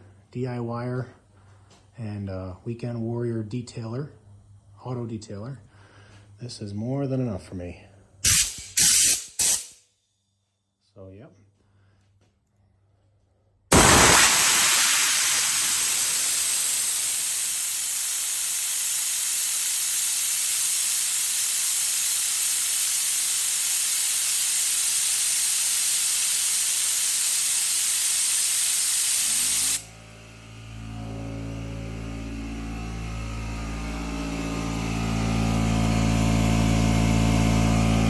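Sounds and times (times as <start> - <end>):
compressed air hissing: 8.2 - 9.8, 13.7 - 29.9
low steady hum: 29.8 - 34.8.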